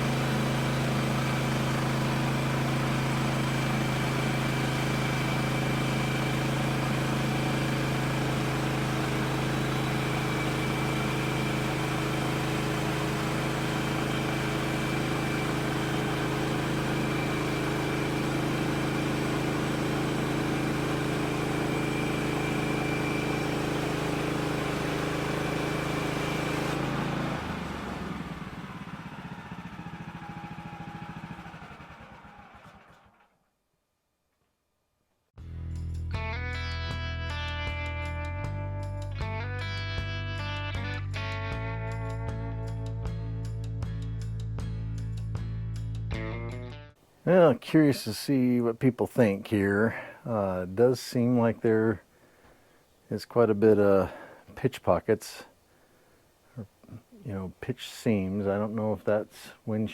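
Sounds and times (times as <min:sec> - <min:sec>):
gasoline engine running: 0:00.0 - 0:33.4.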